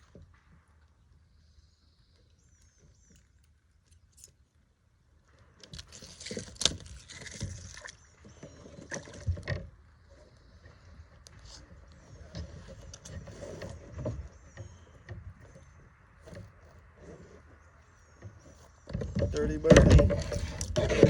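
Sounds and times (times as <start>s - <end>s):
scraping on kayak hull: 5.7s - 21.0s.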